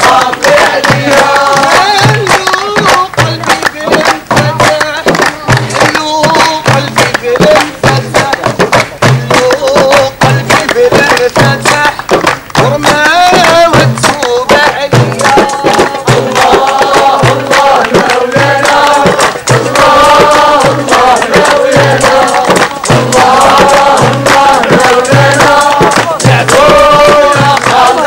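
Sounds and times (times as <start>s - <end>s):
group of voices chanting: 0.0s - 4.6s, 13.3s - 28.0s.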